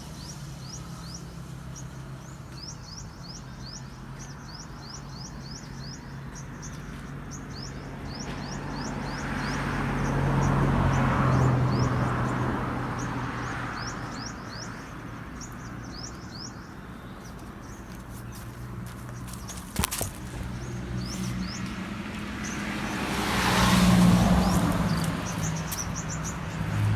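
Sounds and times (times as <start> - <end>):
vehicle passing by: 7.2 - 16.6, 17.6 - 26.9.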